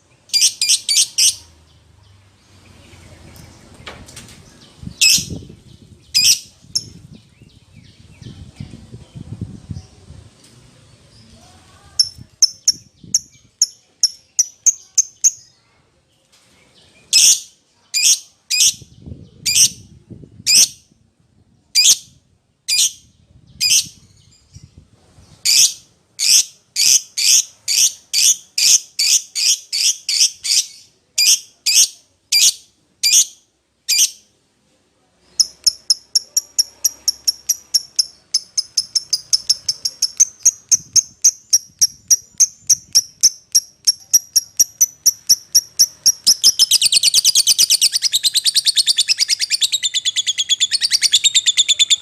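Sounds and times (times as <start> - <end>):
lovebird shrill chirping: 0.3 - 1.4, 5.0 - 5.4, 6.1 - 7.0, 12.0 - 15.4, 25.5 - 34.3, 35.3 - 52.0.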